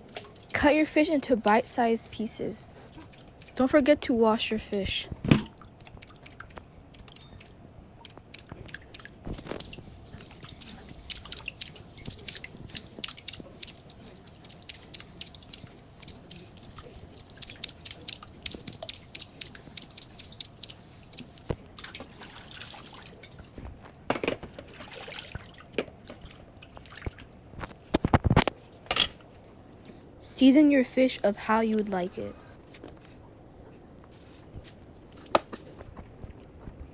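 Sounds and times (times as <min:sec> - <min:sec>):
small water splashes: 0:21.8 - 0:23.3, 0:24.6 - 0:27.4
water pouring: 0:21.8 - 0:23.4.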